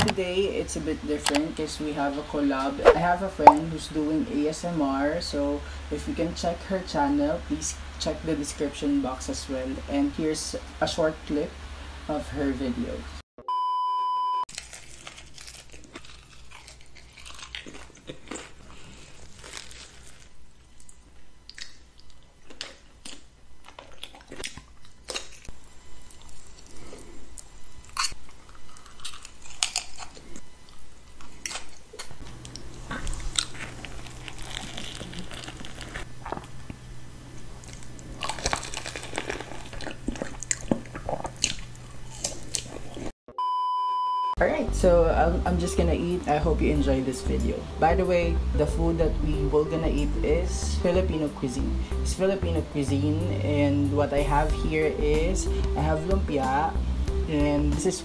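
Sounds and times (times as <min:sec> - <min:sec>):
test-tone beep: 0:13.4 - 0:14.4, 0:43.3 - 0:44.4
crunching and chewing food: 0:14.5 - 0:43.2.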